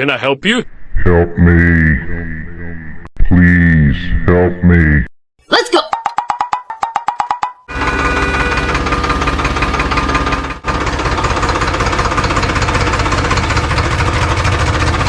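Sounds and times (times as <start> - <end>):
tractor engine knocking: 5.9 - 15.0.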